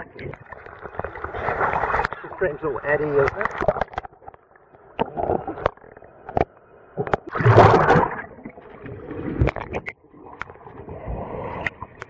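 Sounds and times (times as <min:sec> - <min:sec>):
water sloshing and splashing: 0:00.0 - 0:12.0
water clicking against camera: 0:03.0 - 0:04.4, 0:05.0 - 0:08.2, 0:09.4 - 0:10.6.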